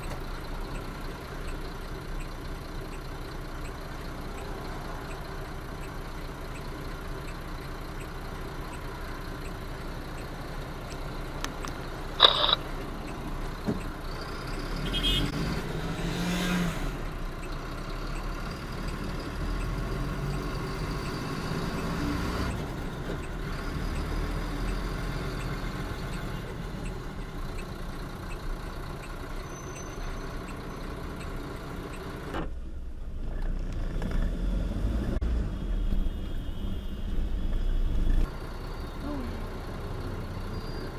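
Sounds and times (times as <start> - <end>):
truck engine and road noise: 0.0 - 40.9
sharp click: 11.4 - 12.7.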